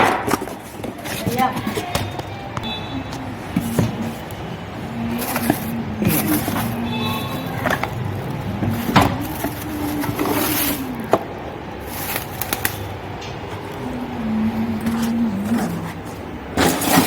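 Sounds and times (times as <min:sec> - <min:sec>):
low background drone: 0:12.9 - 0:16.6.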